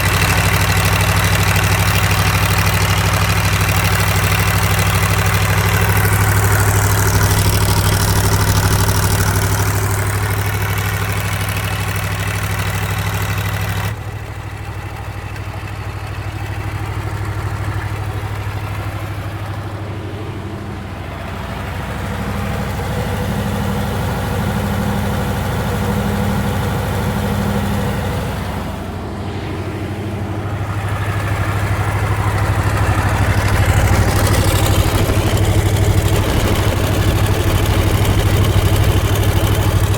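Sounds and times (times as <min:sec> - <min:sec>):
diesel generator humming: 0:00.0 - 0:39.9.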